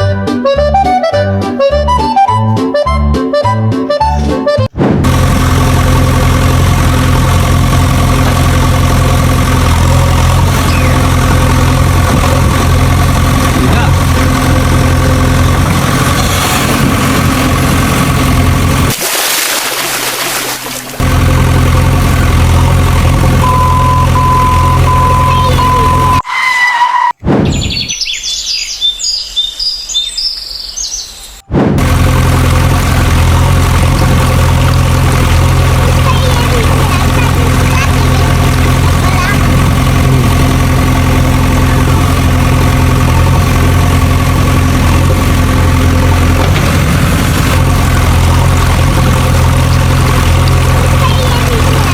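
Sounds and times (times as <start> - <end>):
vehicle engine idling: 5.0 - 18.9, 20.4 - 26.2, 31.8 - 51.9
birds chirping: 10.6 - 11.2, 23.5 - 26.2, 27.1 - 31.5.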